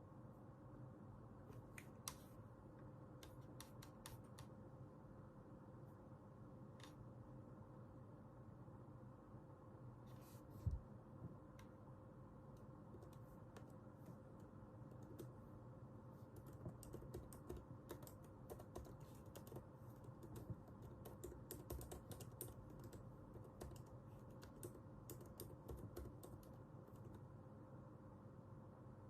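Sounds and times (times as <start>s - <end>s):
faint keyboard typing: 3.2s - 4.6s, 12.5s - 15.6s, 16.2s - 27.4s.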